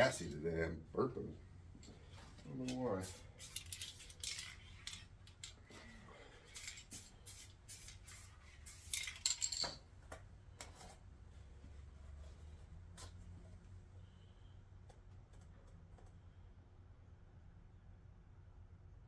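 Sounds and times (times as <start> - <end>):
metallic clinks of small tools: 2.7 - 5.9, 6.5 - 8.0, 8.7 - 9.8.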